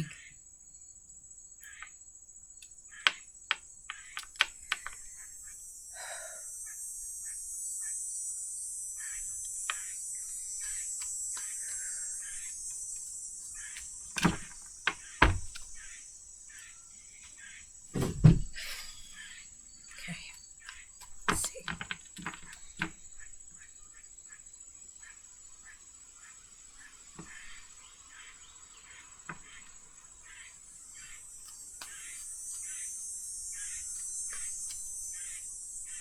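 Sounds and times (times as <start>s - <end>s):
cards snapping clicks: 3.0s - 5.0s, 31.4s - 32.8s
dull knocks: 13.6s - 16.0s, 17.9s - 18.7s.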